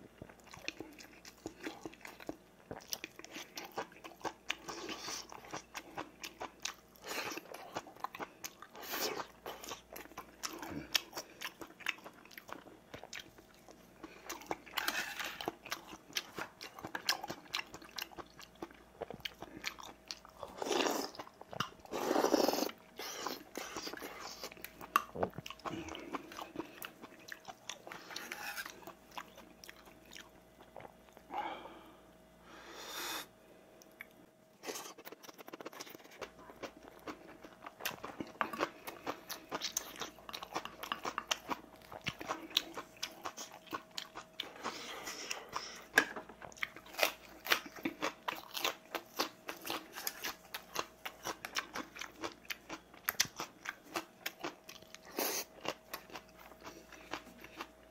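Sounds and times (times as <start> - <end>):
chewing and crunching food: 0.0 - 32.2, 33.7 - 57.9.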